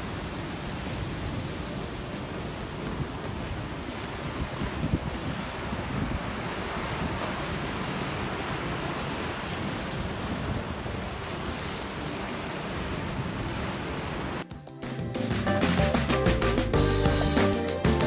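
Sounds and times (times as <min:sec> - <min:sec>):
wind buffeting microphone: 0:00.0 - 0:14.4
sea waves washing on shore: 0:00.0 - 0:14.5.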